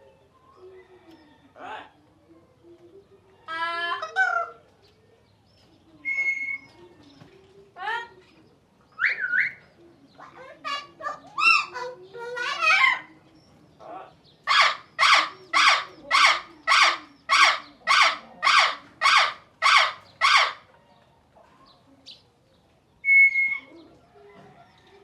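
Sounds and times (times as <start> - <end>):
bird harsh calls: 14.4 - 20.7.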